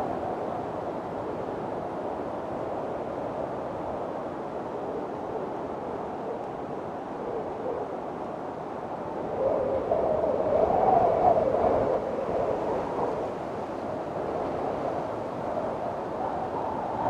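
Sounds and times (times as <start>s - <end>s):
strong wind howling: 0.0s - 17.0s.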